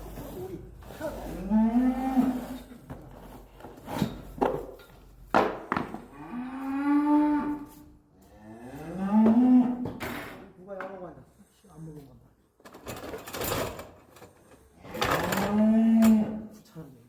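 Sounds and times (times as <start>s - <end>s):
cattle mooing: 6.2s - 7.7s, 8.4s - 9.8s, 15.3s - 16.4s.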